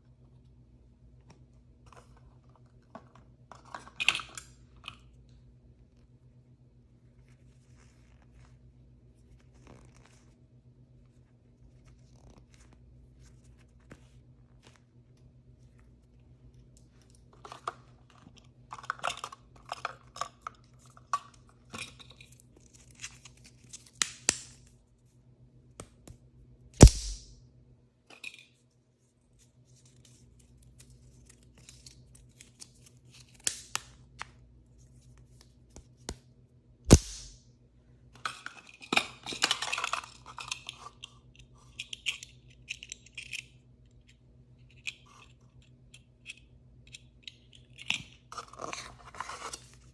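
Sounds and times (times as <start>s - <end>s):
sharp loud snap: 26.8s - 27.4s, 36.9s - 37.4s.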